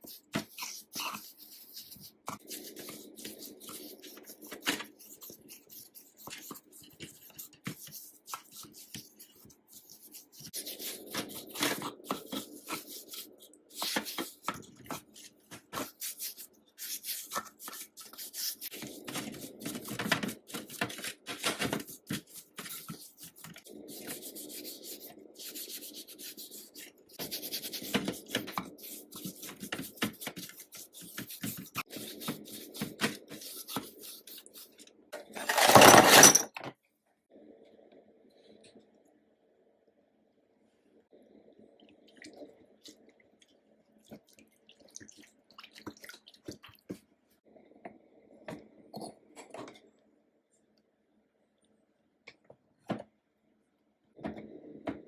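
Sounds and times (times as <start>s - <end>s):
hand rubbing and scraping metal parts: 28.4s - 36.5s
clicks and knocks of parts and tools: 35.2s - 36.8s.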